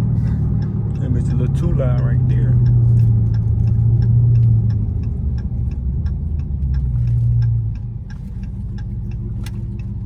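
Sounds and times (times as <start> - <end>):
loud low exhaust drone: 0.0 - 7.8
light regular ticking: 0.0 - 10.0.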